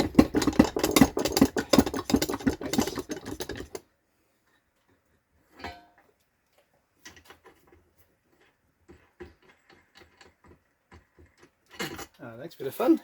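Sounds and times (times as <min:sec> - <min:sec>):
metal tools clicking and knocking: 0:00.0 - 0:03.8.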